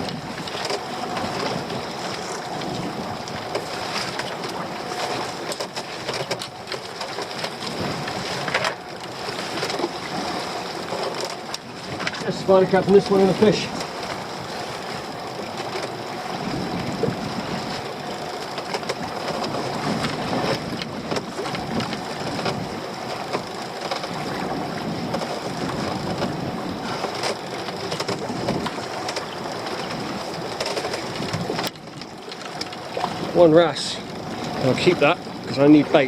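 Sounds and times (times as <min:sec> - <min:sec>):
boat motor hum: 0:00.0 - 0:36.0
choppy water: 0:00.0 - 0:36.0
wind: 0:00.0 - 0:36.0.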